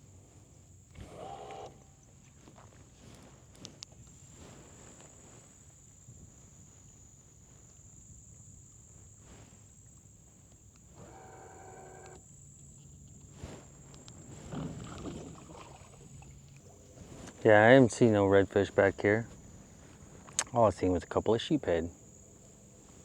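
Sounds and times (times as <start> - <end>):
small clicks: 10.7 - 12.2, 20.2 - 20.6.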